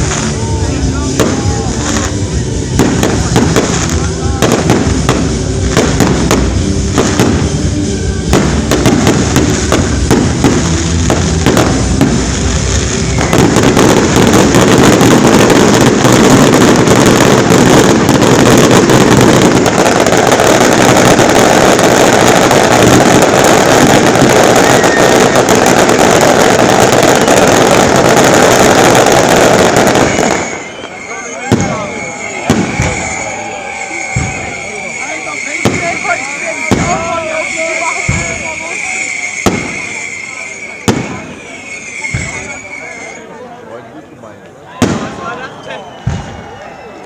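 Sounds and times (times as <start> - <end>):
firework bangs: 0.0 - 43.2, 44.8 - 47.0
firework barrage crackling: 0.0 - 43.4, 44.8 - 47.0.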